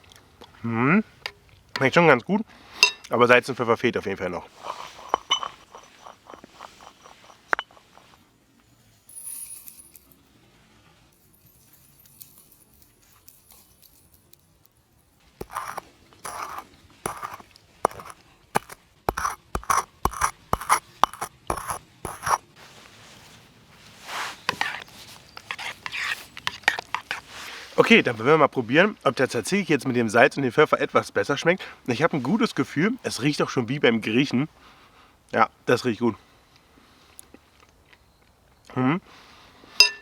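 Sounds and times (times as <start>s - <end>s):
spice mill grinding: 4.5s - 8.2s, 9.0s - 10.2s, 11.2s - 22.5s
light clinks: 4.6s - 10.2s, 11.2s - 18.7s.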